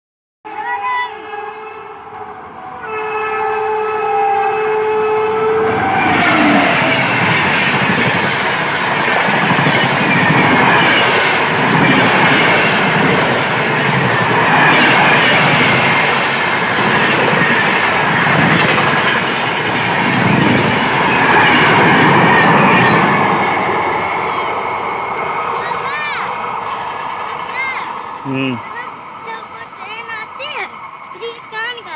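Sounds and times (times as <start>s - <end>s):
locomotive horn blast: 0.5s - 7.4s
train rushing and clattering past: 4.2s - 31.9s.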